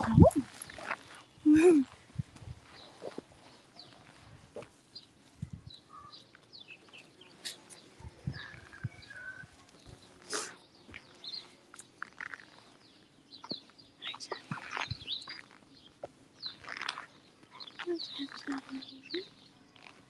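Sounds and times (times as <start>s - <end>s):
birds chirping and singing: 4.9s - 20.0s.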